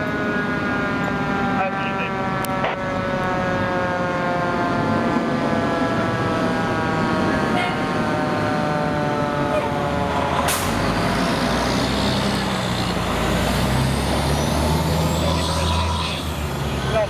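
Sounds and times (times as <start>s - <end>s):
siren tone: 0.0s - 10.5s, 13.9s - 16.3s
diesel engine rumbling: 0.0s - 17.0s
air brake hiss: 10.5s - 10.8s.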